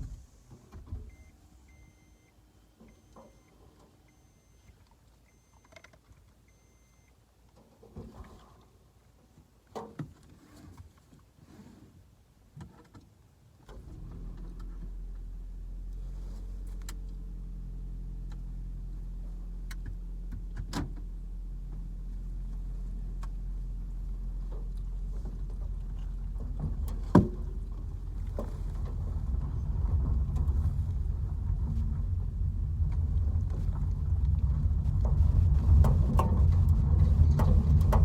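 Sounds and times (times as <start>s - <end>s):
car engine starting and idling: 0.0s - 7.1s, 13.6s - 38.0s.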